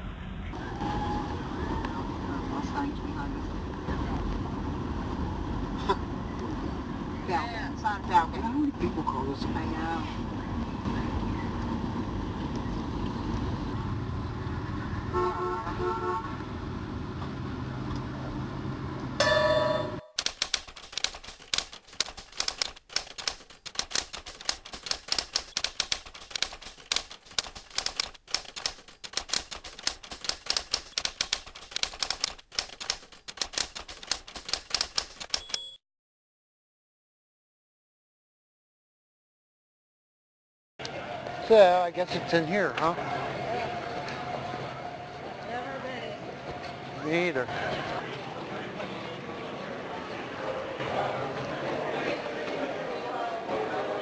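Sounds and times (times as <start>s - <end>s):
vehicle rumble: 0.0s - 19.2s, 40.8s - 51.6s
horn toots: 15.1s - 16.4s
rapid dense clicking: 20.2s - 35.6s.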